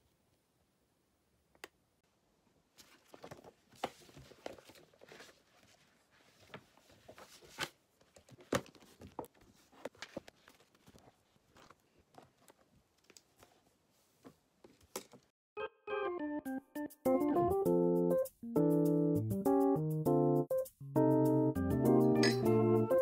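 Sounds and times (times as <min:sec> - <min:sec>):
rustling: 0:02.7 - 0:15.3.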